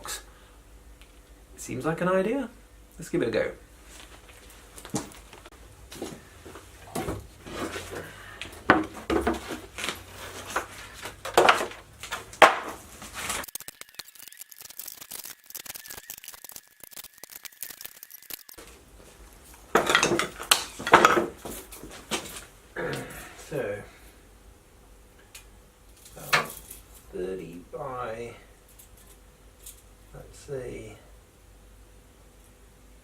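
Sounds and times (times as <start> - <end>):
hard objects clattering: 6.8 - 13.4, 19.6 - 22.3.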